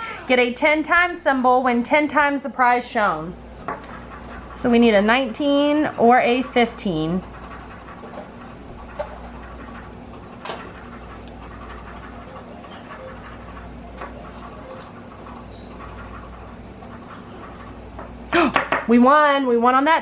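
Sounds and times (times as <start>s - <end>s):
scratching lottery ticket coating: 3.6s - 18.0s.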